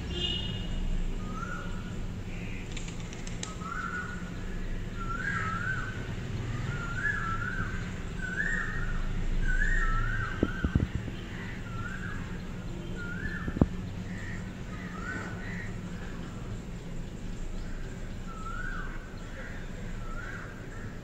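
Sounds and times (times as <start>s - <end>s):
sharp clicks: 2.6s - 3.6s
bird whistled call: 5.0s - 6.0s, 6.7s - 10.8s, 18.3s - 19.0s.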